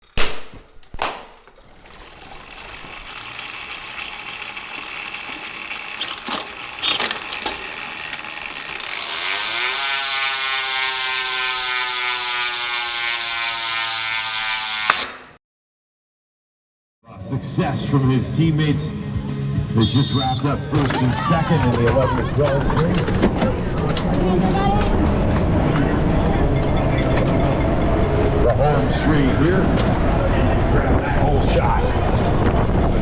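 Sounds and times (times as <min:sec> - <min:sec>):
bicycle freewheel ratcheting whir: 0:00.0 - 0:15.4.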